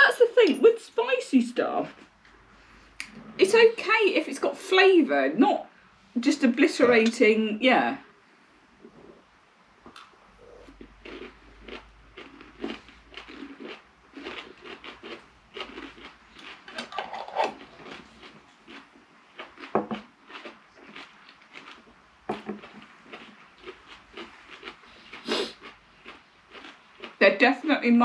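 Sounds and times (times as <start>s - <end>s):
people chewing crunchy pickles: 9.9s - 27.2s.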